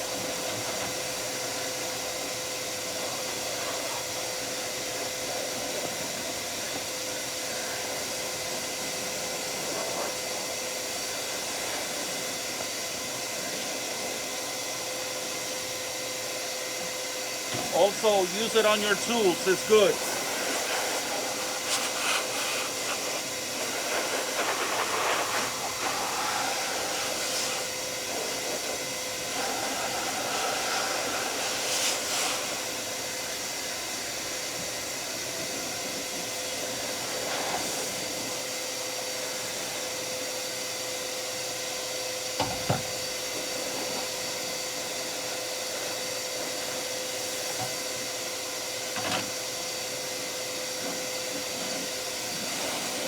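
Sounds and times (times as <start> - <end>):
shop vacuum blowing air: 0.0 - 53.0.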